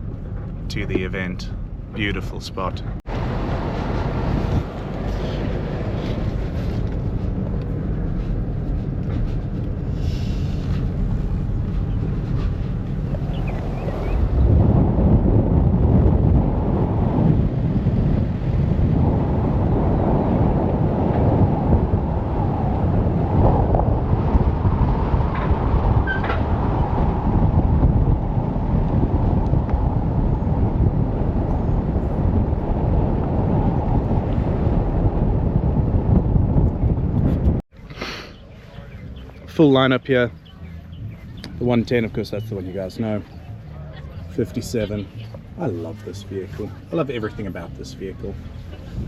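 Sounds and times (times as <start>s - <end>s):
vehicle engine and road rumble: 0.0s - 49.0s
wind buffeting microphone: 0.0s - 49.0s.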